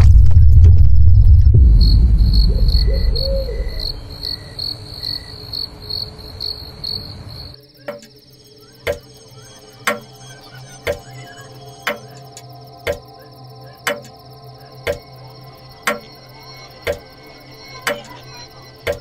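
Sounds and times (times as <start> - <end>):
loud low rumble: 0.0 - 4.9
crickets chirping: 0.0 - 19.0
clock ticking: 8.9 - 9.1, 10.9 - 11.1, 11.8 - 13.1, 13.8 - 14.2, 14.8 - 15.1, 15.9 - 16.2, 16.8 - 17.1, 17.8 - 18.2.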